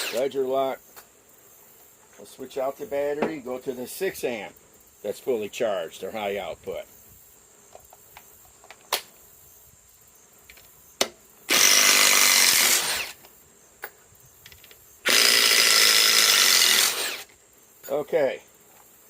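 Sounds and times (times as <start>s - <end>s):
impact driver hammering screw: 0.0s - 0.2s, 11.5s - 13.2s, 15.1s - 17.3s.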